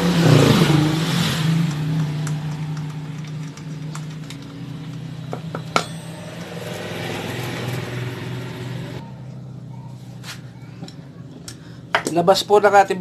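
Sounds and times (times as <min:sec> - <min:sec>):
engine humming: 0:00.0 - 0:12.0
metallic clinks of tools: 0:05.4 - 0:08.0.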